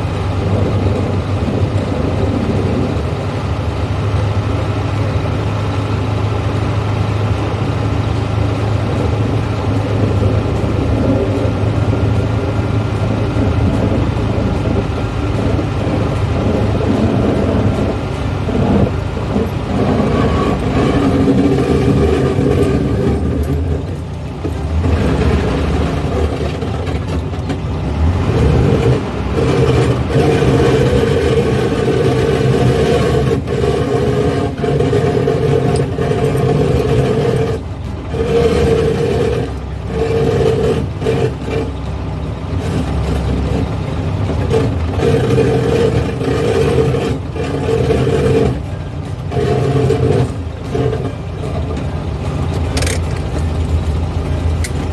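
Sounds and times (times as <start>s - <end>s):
car engine running: 0.0s - 54.9s
road noise: 0.0s - 54.9s.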